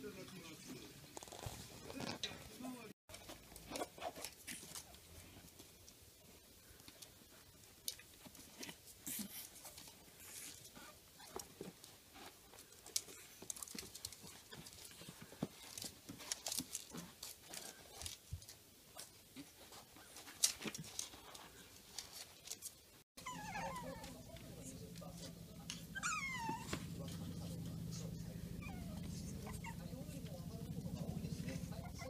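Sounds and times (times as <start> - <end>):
puppy whining: 10.2 - 11.7, 23.2 - 32.0.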